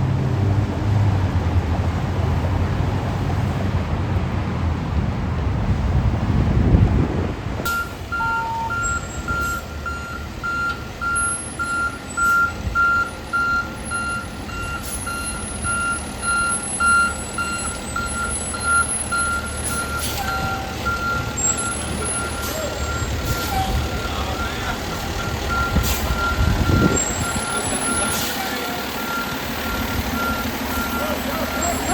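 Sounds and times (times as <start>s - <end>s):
truck engine rumble: 0.0s - 31.9s
back-up alarm beeping: 7.7s - 31.9s.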